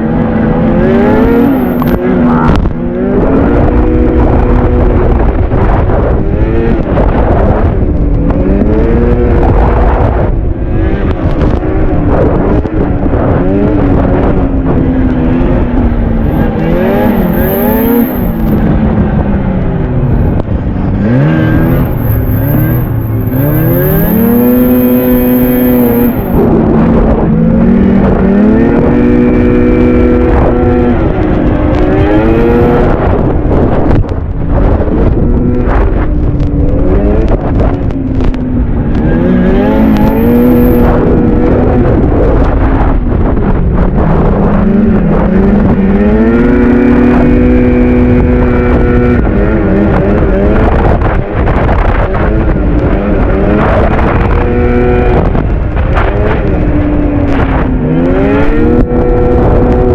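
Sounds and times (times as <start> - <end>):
track and wind rush: 0.0 - 59.9
two-stroke snowmobile engine: 0.0 - 59.9.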